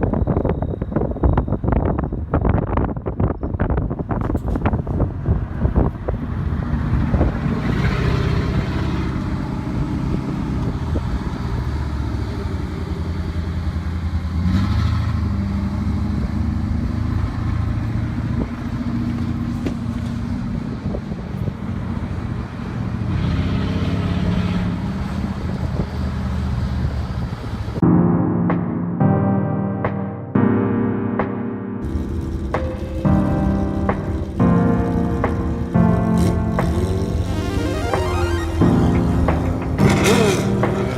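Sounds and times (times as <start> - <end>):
road and wind noise: 0.0 - 29.0, 31.2 - 40.9
vehicle engine running: 31.8 - 40.9.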